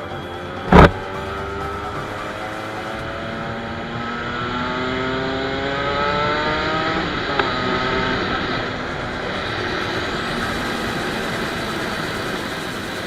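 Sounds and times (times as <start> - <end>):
motorcycle engine accelerating: 0.0 - 13.0
wind and road noise: 0.0 - 13.0
gear shift click: 0.7 - 0.9.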